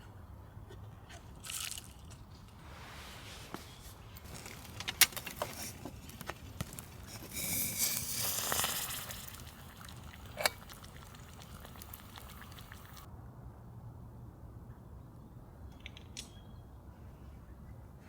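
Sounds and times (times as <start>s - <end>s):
rustling hiss: 2.5s - 13.1s
campfire crackling: 4.2s - 13.1s.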